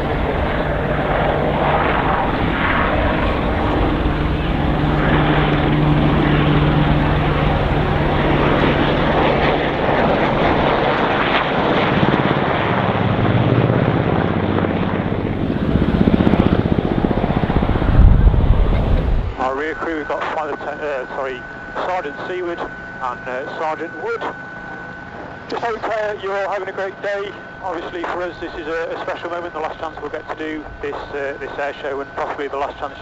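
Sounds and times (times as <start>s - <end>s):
helicopter rotors and engines: 0.0s - 33.0s
heavy low rumble: 15.2s - 20.2s.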